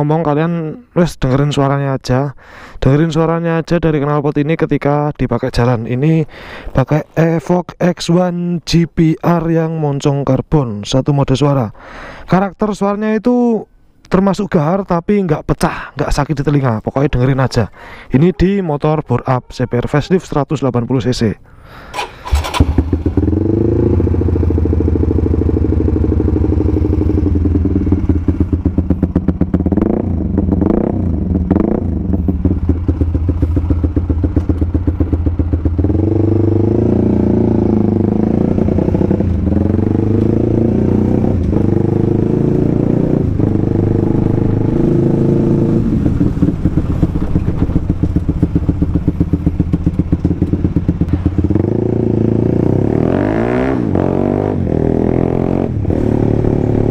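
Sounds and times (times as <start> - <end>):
motorcycle engine revving: 21.9 - 56.9.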